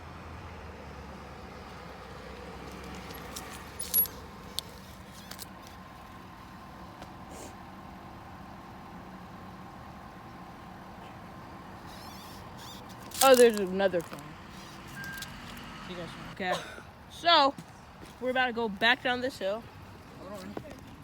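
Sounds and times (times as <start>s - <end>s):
bicycle rolling: 2.5s - 6.8s, 11.9s - 15.6s
metallic clinks and rattles: 2.6s - 5.7s, 12.8s - 14.3s, 14.9s - 15.6s.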